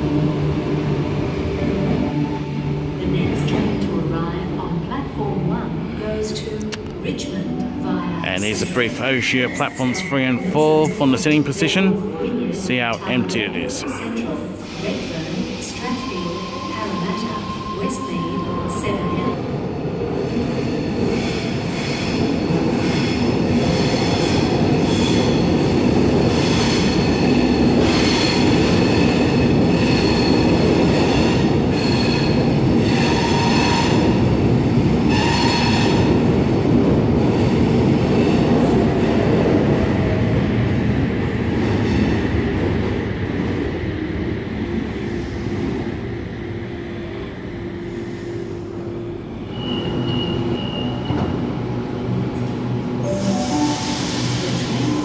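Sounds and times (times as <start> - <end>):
electric train braking: 53.0 - 55.0.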